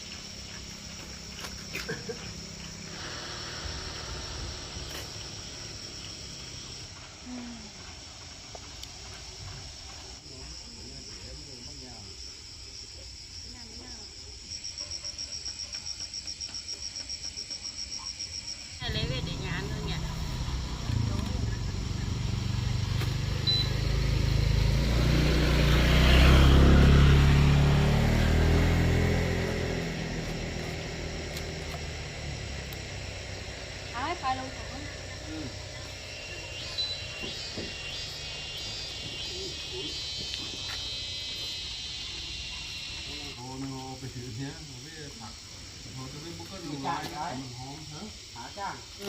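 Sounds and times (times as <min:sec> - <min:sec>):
vehicle engine passing by: 0:00.0 - 0:07.5, 0:18.8 - 0:48.0
insects chirring: 0:00.0 - 0:49.0.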